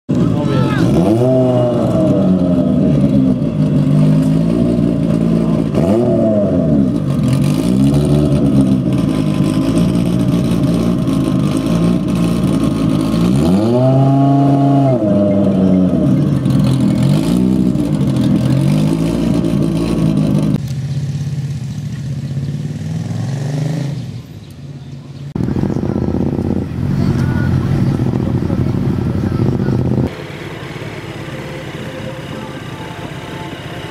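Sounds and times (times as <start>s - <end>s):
racing motorcycle engine revving: 0.1s - 24.3s, 25.4s - 33.9s.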